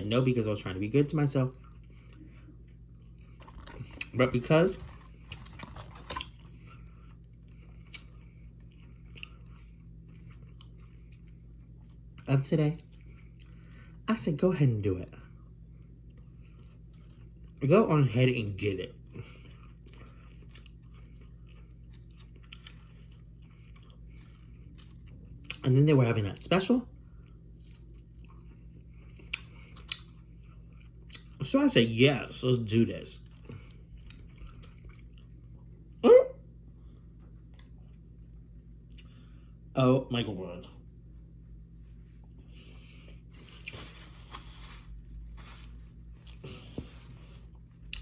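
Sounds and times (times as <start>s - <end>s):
steady low hum: 0.0s - 48.0s
chewing food: 1.4s - 13.8s, 15.7s - 17.6s, 19.0s - 25.9s, 26.9s - 31.5s, 33.2s - 35.9s.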